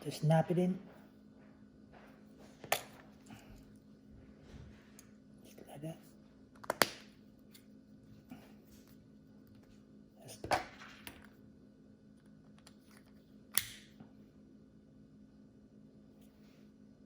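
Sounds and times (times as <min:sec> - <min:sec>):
faint steady hum: 0:00.0 - 0:17.0
plastic key fob clicks and snaps: 0:13.6 - 0:13.9.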